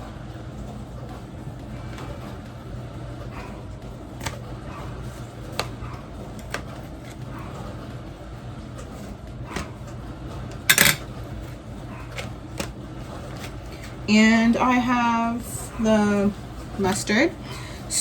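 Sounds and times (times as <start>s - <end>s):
clicks and taps from containers: 10.5s - 11.0s.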